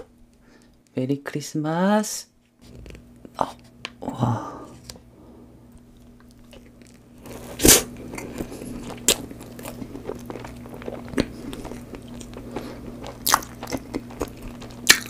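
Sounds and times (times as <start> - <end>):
faint low hum: 0.0 - 15.0
person chewing: 5.8 - 15.0.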